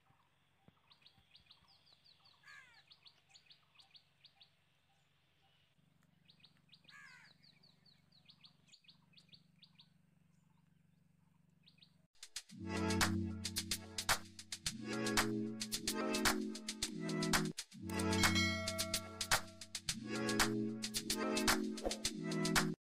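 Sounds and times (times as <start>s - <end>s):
birds chirping: 0.1s - 11.0s.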